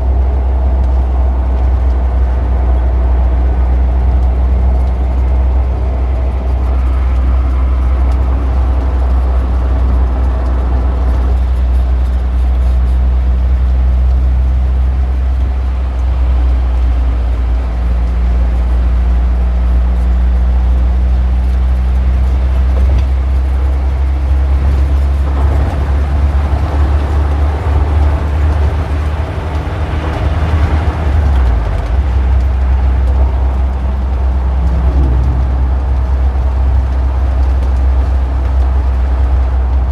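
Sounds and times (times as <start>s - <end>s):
traffic engine rumble: 0.0s - 39.9s
vehicle passing: 29.7s - 38.1s.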